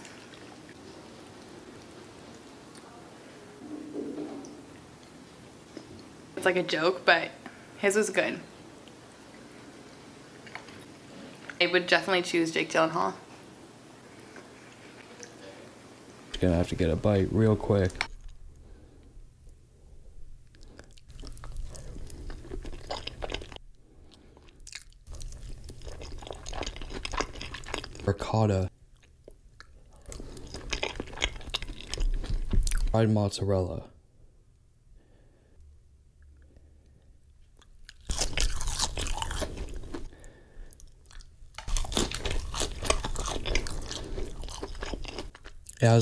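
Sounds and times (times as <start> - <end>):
wet chewing and mouth clicks: 20.4 - 28.1, 28.9 - 32.9, 37.3 - 45.8
crunching bite into fried food: 37.8 - 40.1, 41.1 - 45.8.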